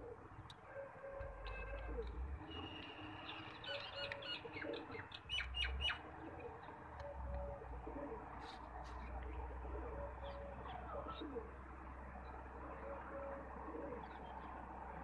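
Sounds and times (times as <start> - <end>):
low cooing bird: 0.0 - 14.6
birds squeaky chirping: 1.4 - 7.2.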